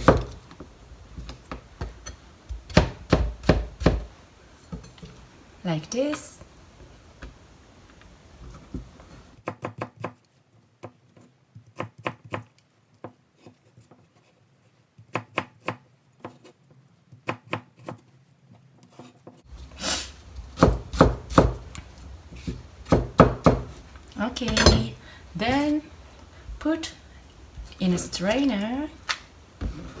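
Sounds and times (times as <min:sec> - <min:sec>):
knife chopping on cutting board: 0:02.7 - 0:04.1, 0:20.6 - 0:21.8, 0:22.4 - 0:23.8.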